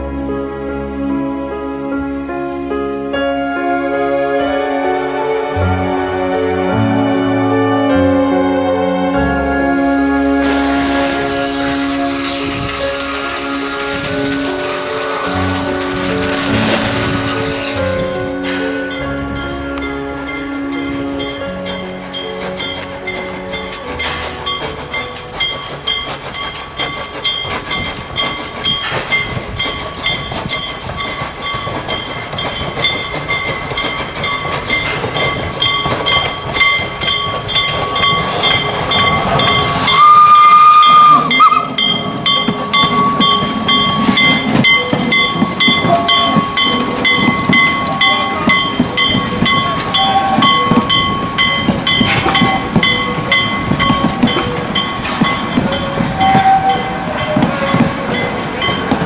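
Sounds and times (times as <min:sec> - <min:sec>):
steam whistle blast: 0:03.6 - 0:19.0, 0:38.9 - 0:42.0, 0:49.4 - 0:51.4, 0:55.7 - 0:57.5
steam locomotive chuffing: 0:03.7 - 0:59.0.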